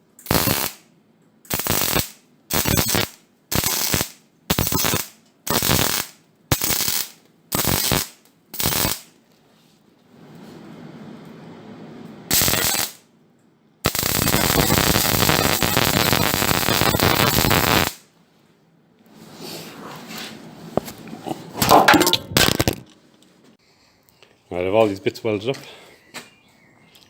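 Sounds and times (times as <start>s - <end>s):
arc welding crackle: 0.2s - 0.9s, 1.5s - 9.2s, 12.3s - 13.1s, 13.8s - 18.1s.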